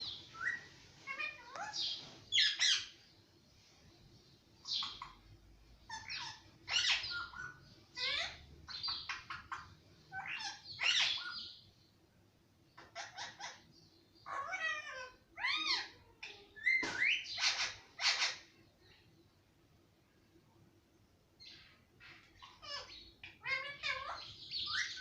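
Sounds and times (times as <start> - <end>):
parakeet chattering calls: 0.0 - 3.0, 4.6 - 5.2, 5.9 - 11.6, 12.8 - 18.5, 21.4 - 25.0.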